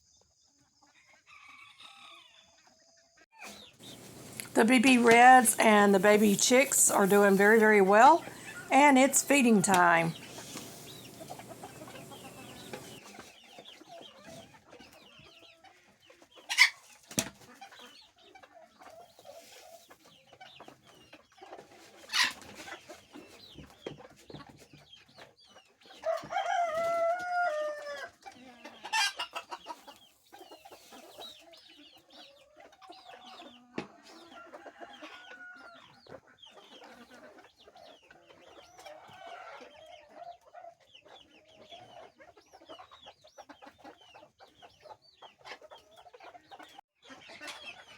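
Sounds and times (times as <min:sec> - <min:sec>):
chickens clucking: 0:00.7 - 0:47.9
chicken drawn-out call: 0:00.8 - 0:13.3, 0:25.9 - 0:31.6, 0:32.2 - 0:44.3
baby chicks peeping: 0:02.1 - 0:47.9.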